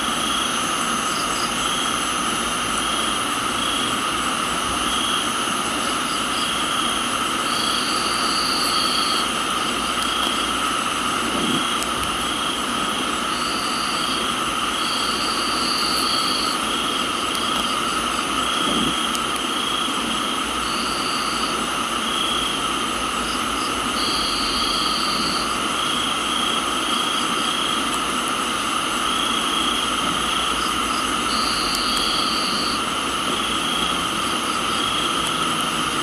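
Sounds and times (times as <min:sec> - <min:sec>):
crickets trilling: 0:00.0 - 0:36.0
pulsing insect call: 0:00.0 - 0:36.0
rain hiss: 0:00.0 - 0:36.0
higher insect trill: 0:04.8 - 0:22.6, 0:28.6 - 0:36.0.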